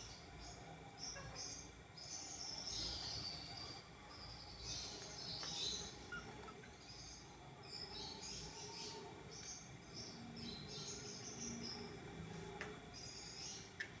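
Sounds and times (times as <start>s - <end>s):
budgerigars chirping: 1.0s - 9.0s.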